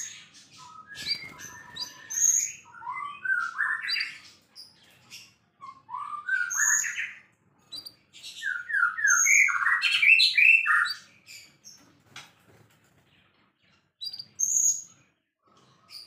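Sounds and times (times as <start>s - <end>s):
bird singing whistled song: 0.0s - 4.4s, 5.6s - 11.5s, 14.0s - 14.9s.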